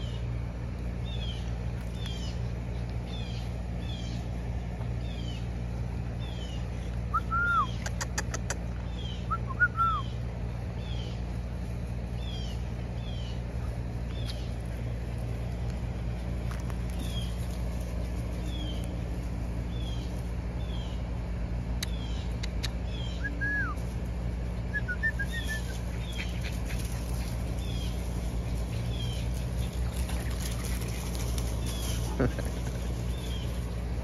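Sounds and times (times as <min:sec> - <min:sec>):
low hum: 0:00.0 - 0:34.0.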